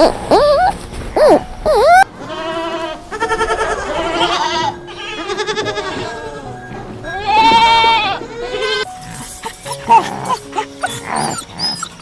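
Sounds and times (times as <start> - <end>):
livestock bleating: 2.2 - 8.9.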